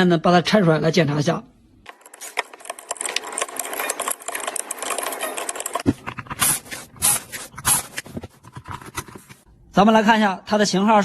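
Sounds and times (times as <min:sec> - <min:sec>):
tool scraping on circuit board: 0:02.1 - 0:09.4.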